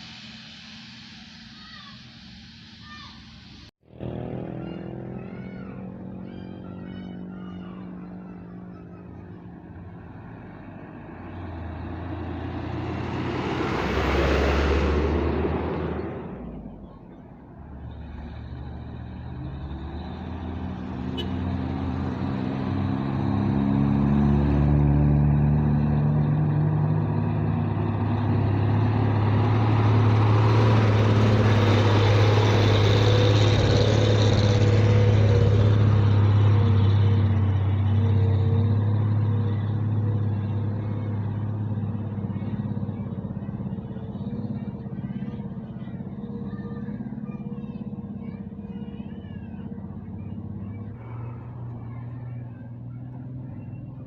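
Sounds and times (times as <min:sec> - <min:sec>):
heavy truck engine climbing uphill: 0:00.0 - 0:54.0.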